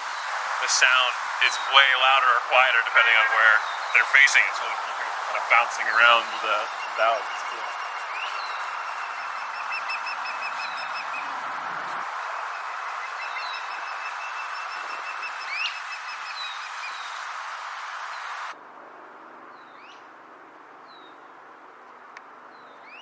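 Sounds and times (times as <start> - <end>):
steady hiss: 0.0 - 18.6
osprey whistled chirps: 0.1 - 17.3.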